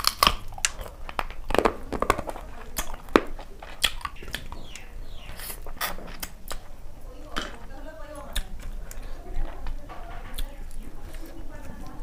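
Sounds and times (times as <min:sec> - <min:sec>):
person chewing crunchy food: 0:00.0 - 0:06.9.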